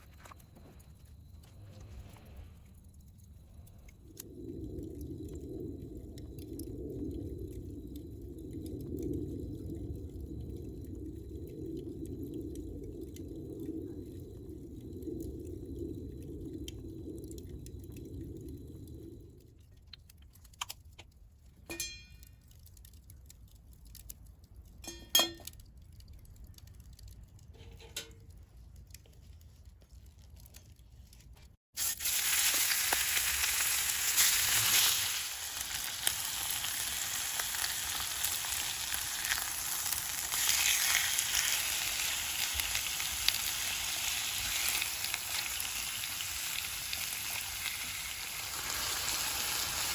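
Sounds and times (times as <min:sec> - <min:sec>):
light clinks: 0:21.6 - 0:22.4, 0:24.8 - 0:25.6
food sizzling in a frying pan: 0:31.8 - 0:49.9.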